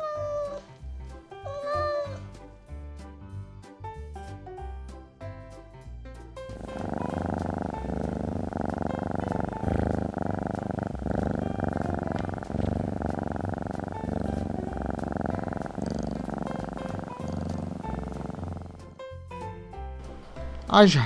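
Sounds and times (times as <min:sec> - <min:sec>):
cat purring: 0:06.5 - 0:19.0.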